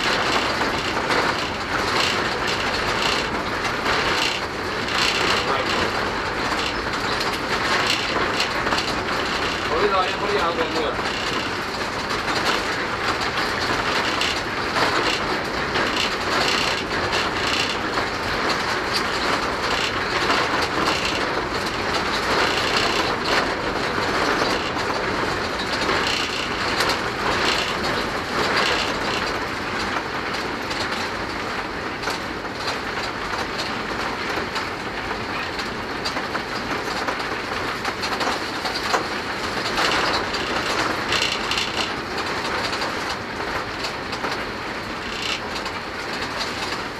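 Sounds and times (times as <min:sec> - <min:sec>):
locomotive rumble and rattle: 0:00.0 - 0:46.9
wheels clicking over rails: 0:00.0 - 0:46.9.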